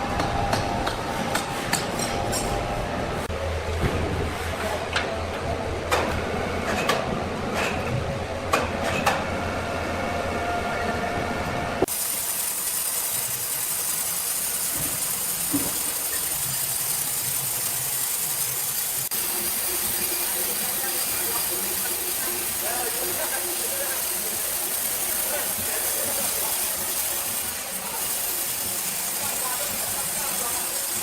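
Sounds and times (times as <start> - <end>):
sharp clanks and knocks: 0.2 - 2.7
sawmill machinery humming: 9.1 - 31.0.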